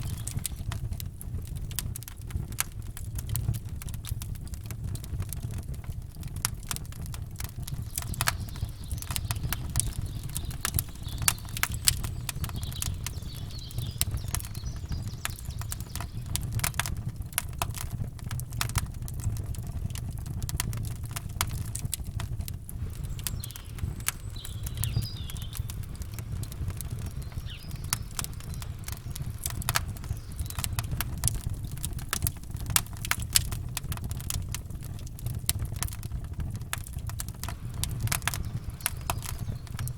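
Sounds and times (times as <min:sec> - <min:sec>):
campfire crackling and popping: 0:00.0 - 0:39.9
faint bird chirps: 0:07.7 - 0:16.6, 0:22.8 - 0:31.8, 0:37.5 - 0:39.9.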